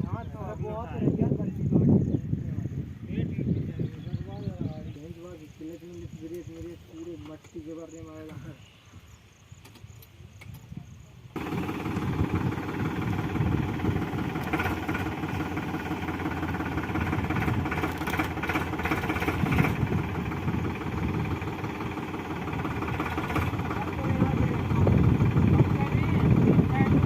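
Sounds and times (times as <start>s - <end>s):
tractor diesel engine running: 11.2s - 27.0s.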